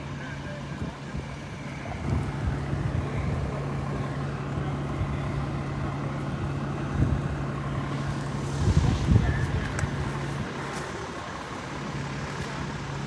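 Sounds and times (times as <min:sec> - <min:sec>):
fire truck engine running: 0:00.0 - 0:13.0
rough low rumble: 0:01.3 - 0:11.2.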